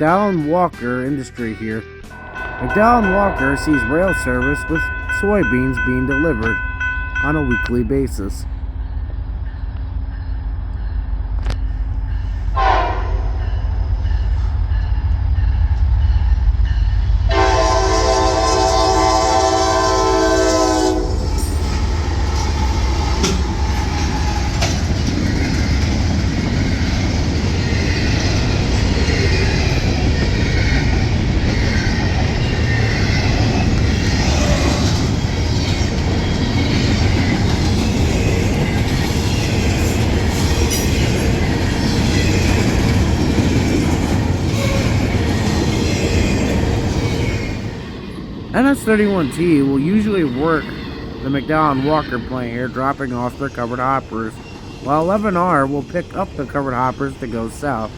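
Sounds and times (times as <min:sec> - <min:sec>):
train air horn chord: 0:02.0 - 0:05.1, 0:12.6 - 0:13.4, 0:17.3 - 0:21.2.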